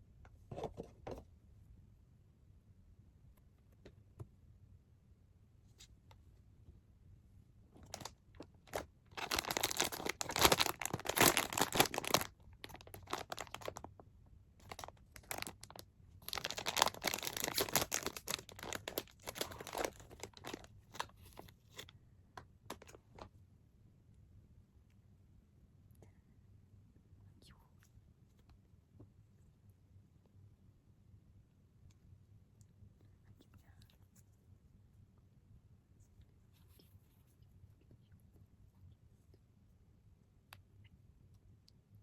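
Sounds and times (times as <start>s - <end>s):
packaging tearing and crumpling: 7.8s - 8.1s, 8.7s - 13.9s, 14.6s - 21.1s.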